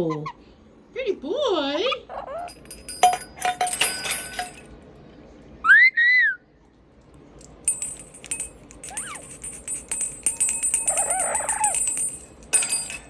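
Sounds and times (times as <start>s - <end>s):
light clicking and clinking: 2.5s - 4.8s, 7.0s - 13.0s.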